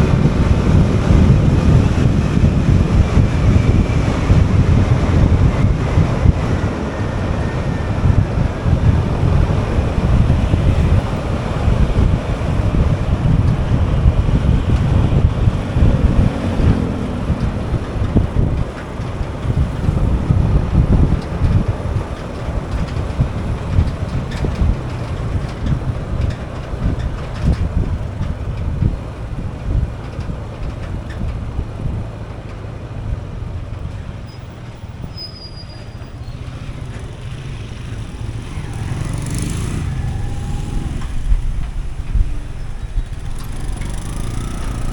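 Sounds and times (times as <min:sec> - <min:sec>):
wind buffeting microphone: 0:00.0 - 0:35.0, 0:36.0 - 0:44.9
motorbike engine and road rumble: 0:00.0 - 0:44.9.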